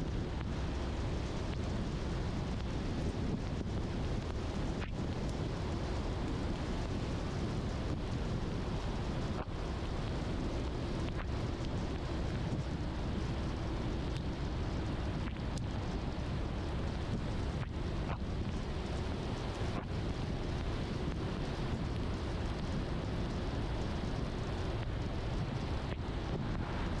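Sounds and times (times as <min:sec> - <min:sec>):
car driving on wet road: 0:00.0 - 0:27.0
faint ticks: 0:04.2 - 0:07.0, 0:11.0 - 0:12.0, 0:14.1 - 0:27.0.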